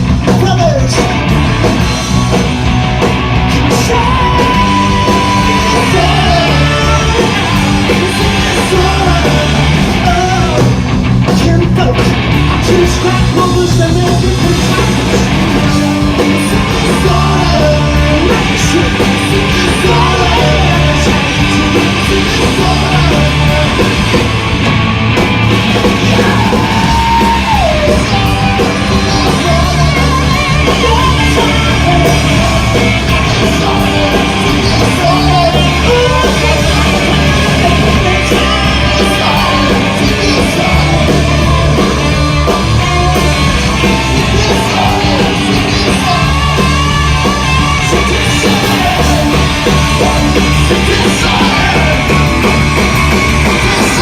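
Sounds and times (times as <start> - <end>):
bass: 0.0 - 54.0
distorted electric guitars: 0.0 - 54.0
drums: 0.0 - 54.0
shouted vocals: 3.5 - 10.7, 25.8 - 54.0.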